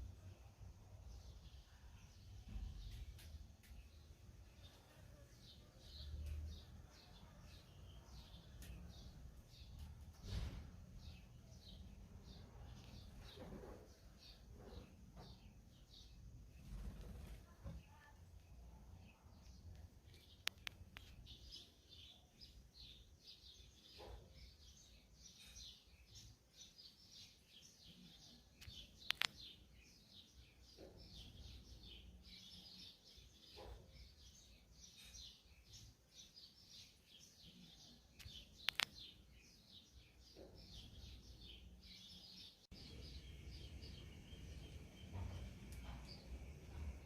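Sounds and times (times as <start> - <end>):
small birds chirping: 0.0 - 47.0
sharp clicks: 20.1 - 21.2, 28.6 - 29.5, 38.2 - 39.1.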